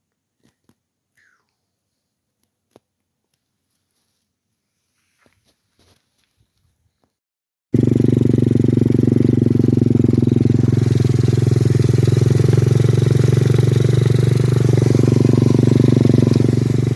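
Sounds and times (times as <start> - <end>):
dirt bike engine running: 7.8 - 16.9.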